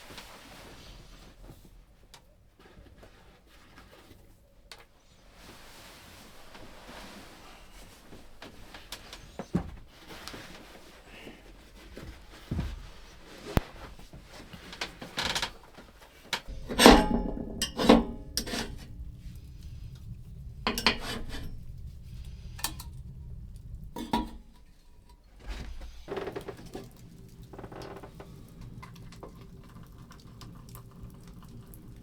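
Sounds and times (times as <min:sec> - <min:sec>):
metal pots and utensils clattering: 0:16.4 - 0:23.2, 0:23.9 - 0:25.2.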